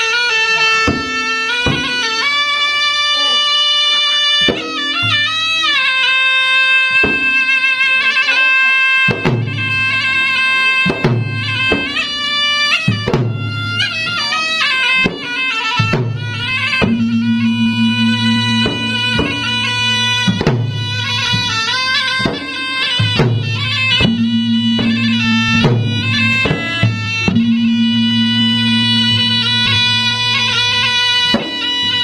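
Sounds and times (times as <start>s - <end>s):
sharp drum strokes: 0.0s - 2.4s, 4.2s - 32.0s
reedy wind instrument melody: 0.0s - 32.0s
deep booming drum: 9.1s - 10.0s, 12.9s - 14.0s, 15.1s - 21.6s, 22.2s - 30.5s.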